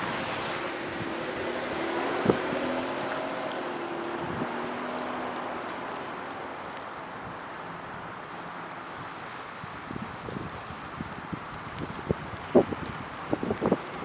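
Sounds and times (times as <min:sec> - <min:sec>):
wind on microphone: 0:00.0 - 0:03.1, 0:09.7 - 0:14.0
car engine moving away: 0:00.0 - 0:05.9.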